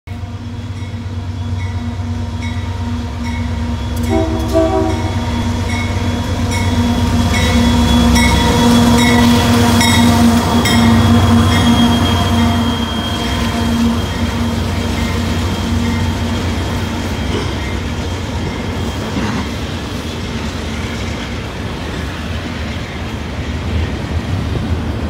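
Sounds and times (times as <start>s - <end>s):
locomotive engine rumble: 0.1s - 25.0s
short horn toots: 4.0s - 5.3s.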